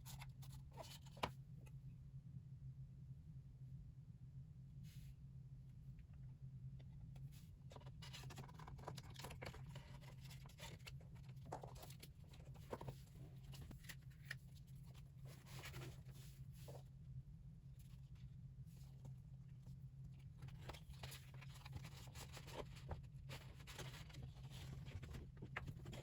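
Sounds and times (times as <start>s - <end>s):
steady low hum: 0.0s - 26.0s
packaging rustling and scratching: 20.4s - 26.0s.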